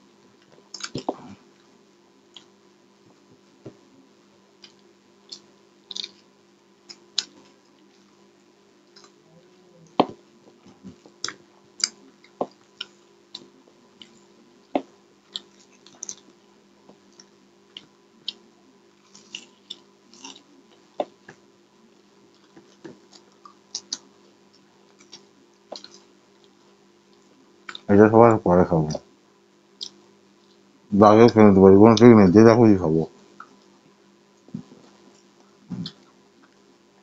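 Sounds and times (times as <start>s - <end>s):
faint steady hum: 0.0s - 37.0s
wet mouth clicks: 4.6s - 6.2s, 29.8s - 30.0s, 35.7s - 36.6s
crisp chewing crunches: 4.6s - 8.1s, 15.3s - 18.4s, 19.0s - 20.8s.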